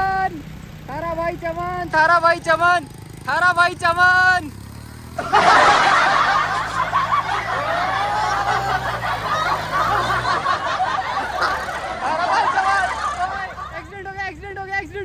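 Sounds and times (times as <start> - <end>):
people laughing and snickering: 5.2 - 14.0.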